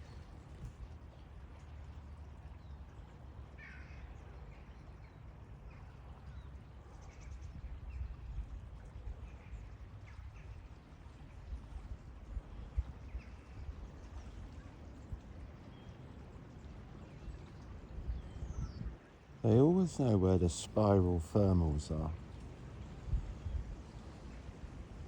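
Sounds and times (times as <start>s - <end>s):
steady low rumble: 19.4s - 24.4s.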